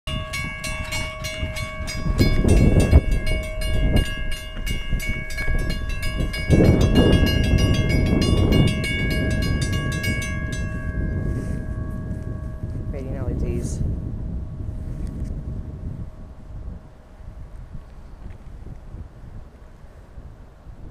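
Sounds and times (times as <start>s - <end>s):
wheels clicking over rail joints: 0.1s - 10.8s
heavy low rumbling: 0.1s - 17.7s.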